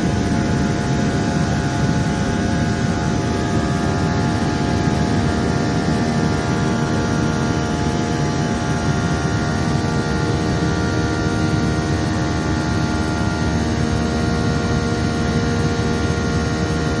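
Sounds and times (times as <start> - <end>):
jet engines droning in cabin: 0.0 - 17.0.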